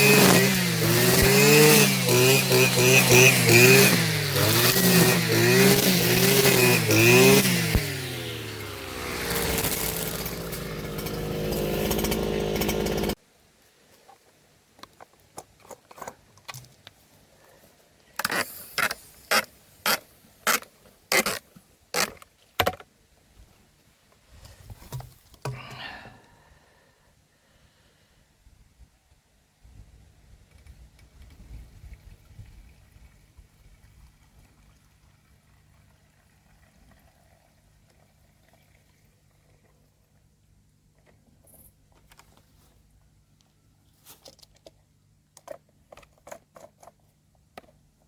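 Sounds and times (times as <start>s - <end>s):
small petrol engine revving: 0.0s - 13.2s.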